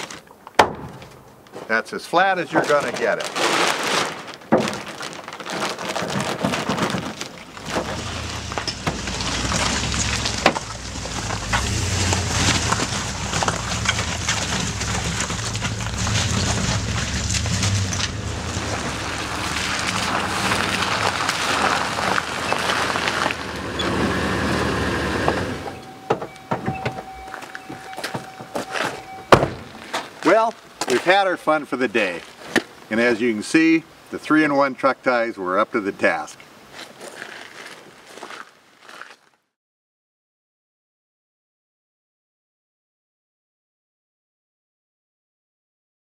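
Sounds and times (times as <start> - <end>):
tarp crackling and flapping: 2.4 - 25.2
low road rumble: 4.5 - 33.0.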